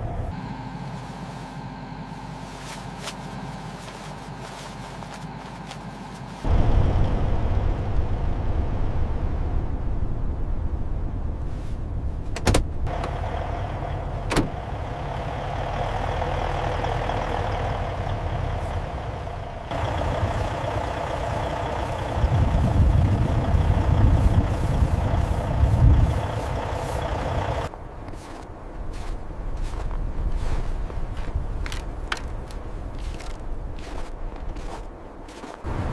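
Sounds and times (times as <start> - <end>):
truck engine rumbling: 0.0 - 27.8.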